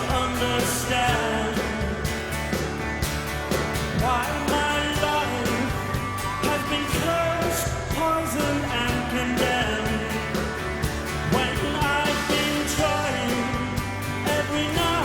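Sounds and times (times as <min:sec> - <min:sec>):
live rock band playing: 0:00.0 - 0:15.0
steady drumbeat: 0:00.0 - 0:15.0.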